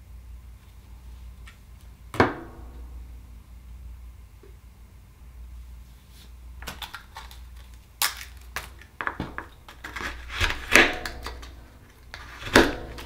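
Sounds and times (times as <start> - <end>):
knife prying and scraping shell: 9.7 - 13.0.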